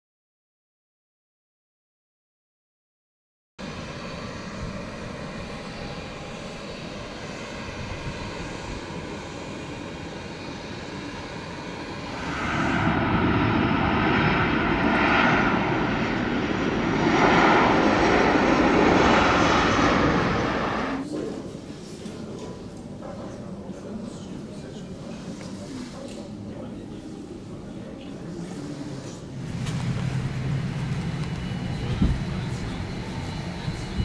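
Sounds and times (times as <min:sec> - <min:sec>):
jet engines running: 0:03.6 - 0:21.1, 0:29.1 - 0:34.0.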